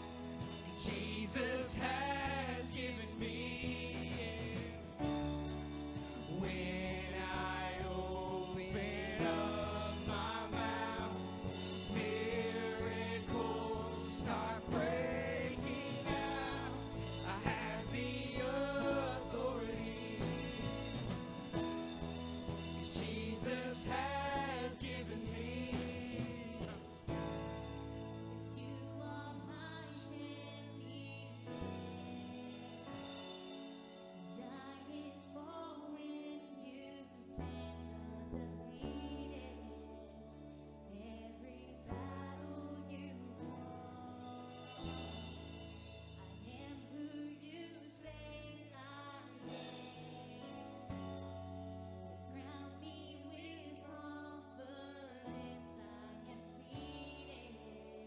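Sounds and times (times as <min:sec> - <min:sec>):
band playing: 0:00.0 - 0:29.2
worship team singing: 0:00.0 - 0:58.0.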